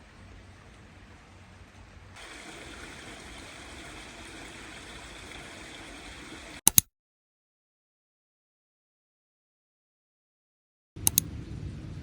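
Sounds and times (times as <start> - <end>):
sharp click: 6.6 - 6.9, 11.0 - 11.2
steady rushing noise: 11.0 - 12.0.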